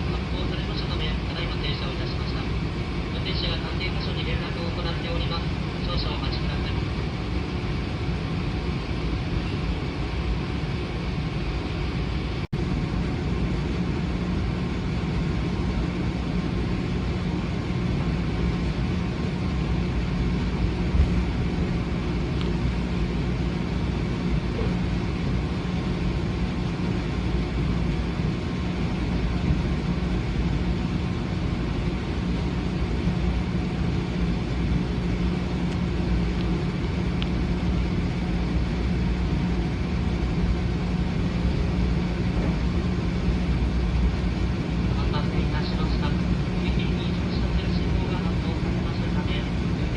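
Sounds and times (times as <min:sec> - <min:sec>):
train rumbling: 0:12.6 - 0:49.9.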